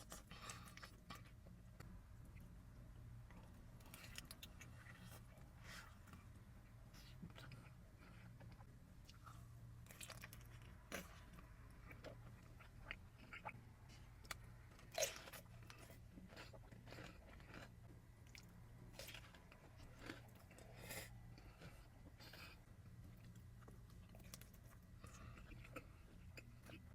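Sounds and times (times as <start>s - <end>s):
person chewing food: 3.3s - 26.9s.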